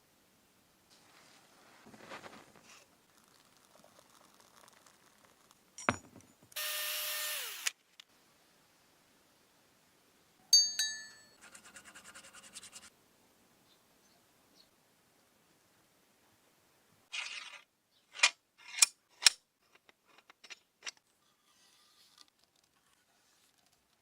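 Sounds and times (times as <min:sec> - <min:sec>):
power tool running: 0:06.6 - 0:07.7.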